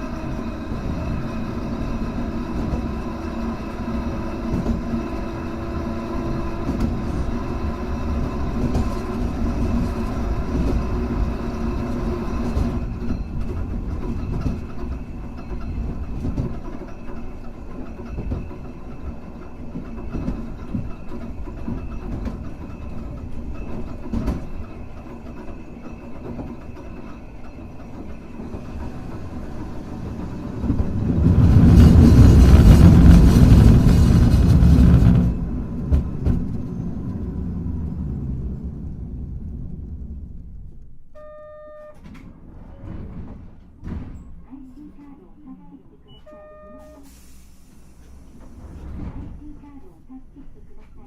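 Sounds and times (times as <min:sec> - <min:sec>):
wheels clattering over rail joints: 0:00.0 - 0:40.8
tram hum: 0:00.0 - 0:51.0.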